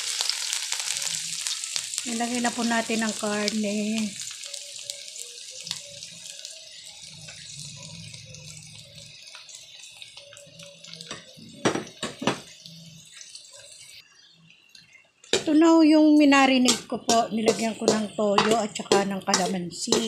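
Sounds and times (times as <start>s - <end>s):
meat sizzling in a wok: 0.0s - 14.3s, 16.4s - 20.0s.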